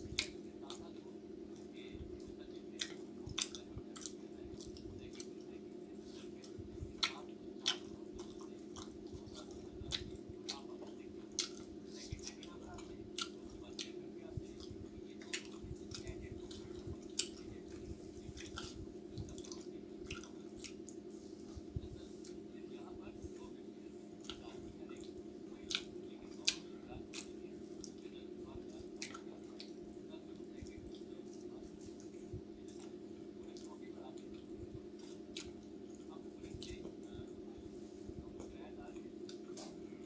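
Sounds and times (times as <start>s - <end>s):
man chewing with wet smacks: 0.0s - 40.0s
steady low hum: 0.0s - 40.0s.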